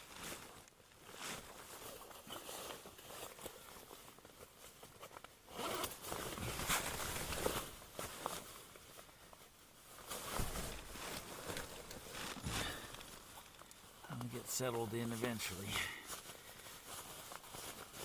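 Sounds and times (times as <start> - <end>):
fabric rustling: 0.0 - 18.0
zipper being pulled: 5.5 - 7.0.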